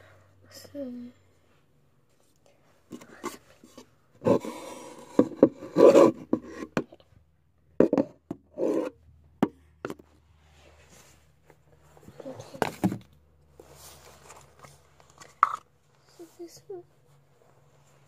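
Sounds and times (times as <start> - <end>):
container rubbing and scraping: 3.2 - 6.8, 8.5 - 9.0.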